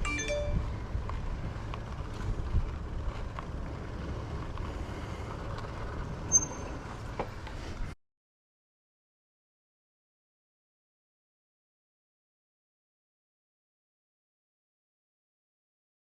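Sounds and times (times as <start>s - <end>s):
short high tone: 0.0s - 0.8s
wind and road noise rumble: 0.0s - 8.0s.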